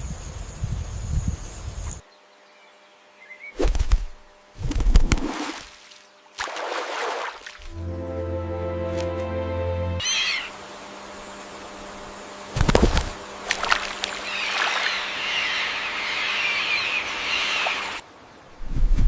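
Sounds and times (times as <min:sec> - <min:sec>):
high-pitched bird chatter: 0:10.0 - 0:10.5.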